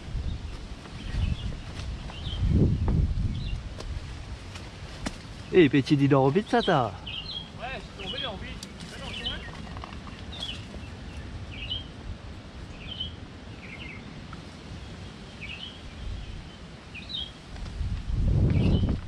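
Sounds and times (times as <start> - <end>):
low outdoor rumble: 0.0 - 16.8
bird chirping: 5.4 - 12.0, 12.7 - 14.1.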